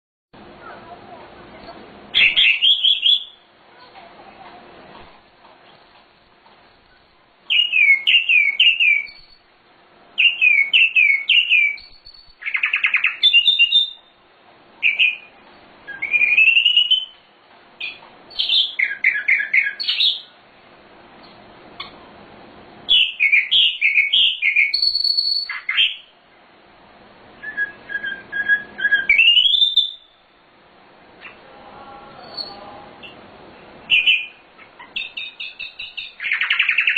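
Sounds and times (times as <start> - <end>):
songbird whistling: 2.1 - 3.4, 7.5 - 9.5, 10.2 - 14.2, 14.8 - 17.2, 17.8 - 20.4, 22.9 - 26.1, 27.4 - 30.3, 32.2 - 33.2, 33.9 - 36.9
bird buzzy rattle: 5.6 - 9.5, 11.5 - 12.6.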